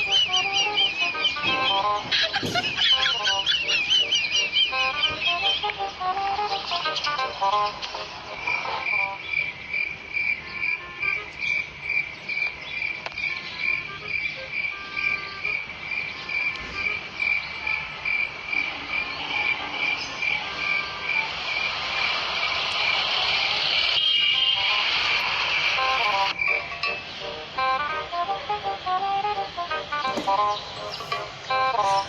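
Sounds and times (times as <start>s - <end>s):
cricket chirping: 8.4s - 27.7s.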